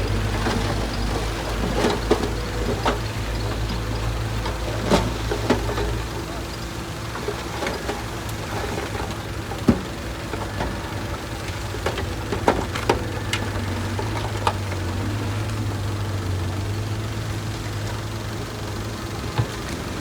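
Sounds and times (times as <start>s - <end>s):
heavy diesel engine running: 0.0s - 20.0s.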